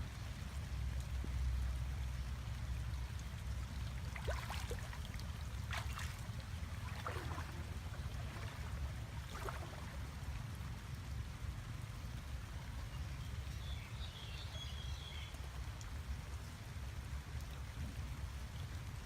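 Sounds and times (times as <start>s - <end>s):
steady low rumble: 0.0s - 12.2s
water splashing and sloshing: 0.0s - 12.7s.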